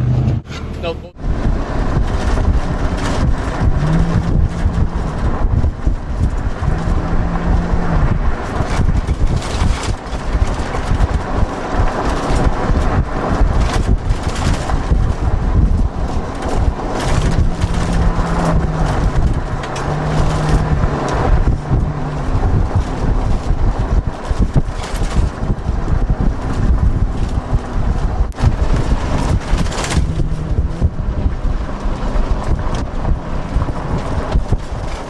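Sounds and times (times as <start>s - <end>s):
off-road vehicle engine: 0.0s - 35.0s
wind buffeting microphone: 1.2s - 35.0s.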